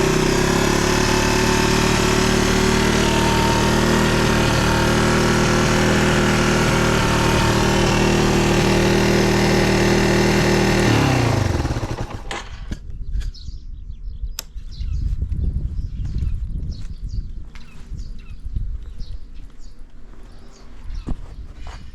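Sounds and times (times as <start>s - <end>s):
motorcycle engine idling: 0.0s - 12.6s.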